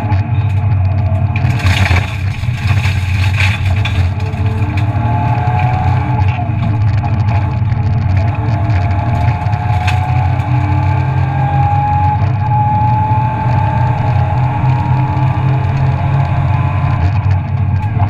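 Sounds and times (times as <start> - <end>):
rally car engine running hard: 0.0 - 18.0
rush of road noise: 0.0 - 18.0.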